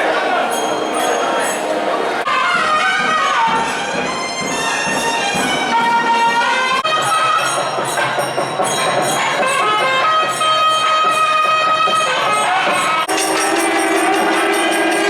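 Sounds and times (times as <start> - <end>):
double-reed wind instrument melody: 0.0 - 8.2, 9.2 - 15.0.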